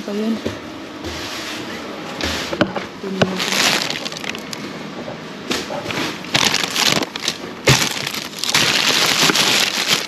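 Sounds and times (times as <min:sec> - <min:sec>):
items knocking: 0:02.6 - 0:10.0
plastic bags rustling: 0:03.1 - 0:04.8, 0:05.9 - 0:10.0.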